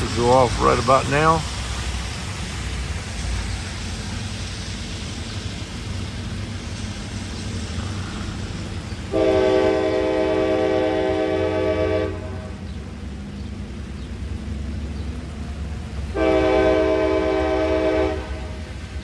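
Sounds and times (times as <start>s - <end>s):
locomotive air horn: 9.1s - 12.6s, 16.1s - 18.8s.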